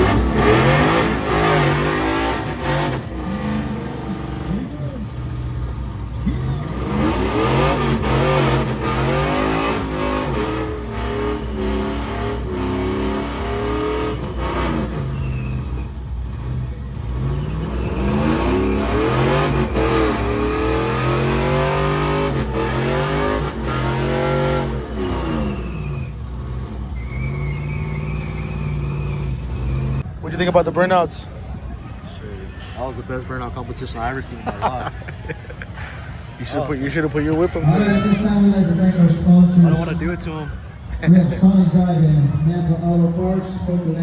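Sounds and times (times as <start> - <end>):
car engine revving hard: 0.0 - 30.1.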